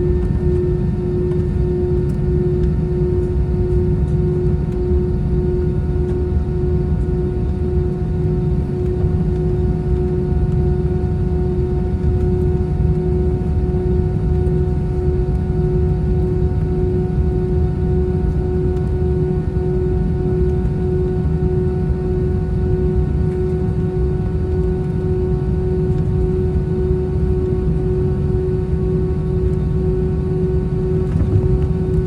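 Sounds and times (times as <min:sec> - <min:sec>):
jet engines idling in cabin: 0:00.0 - 0:32.0.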